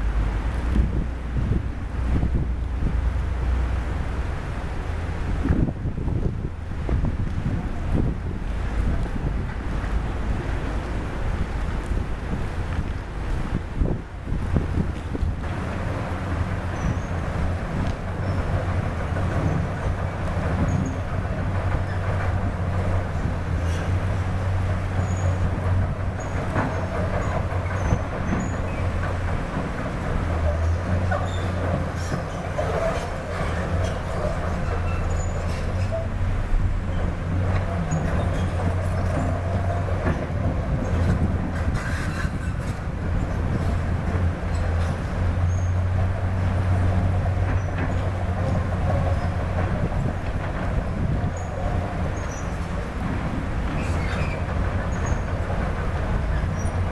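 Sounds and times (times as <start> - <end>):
diesel engine rumbling: 0.0 - 56.9
short high squeaks: 31.2 - 36.2, 41.6 - 42.8.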